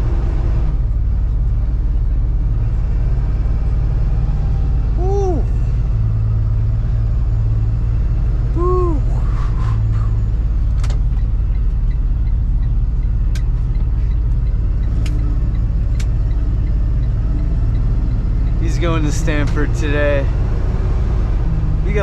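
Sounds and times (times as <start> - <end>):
truck engine and road rumble: 0.0 - 22.0.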